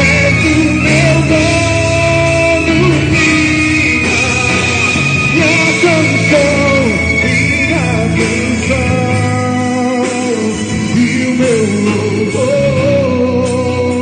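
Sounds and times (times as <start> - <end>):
band accompaniment: 0.0 - 14.0
person singing with vibrato: 0.0 - 14.0.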